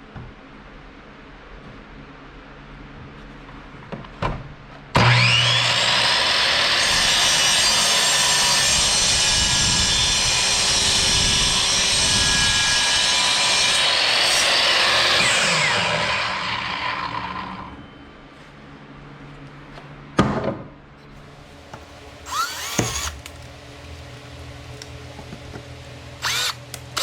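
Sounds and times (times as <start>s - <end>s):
electric power tool whining: 5.0s - 17.9s, 21.8s - 23.5s, 26.2s - 27.0s.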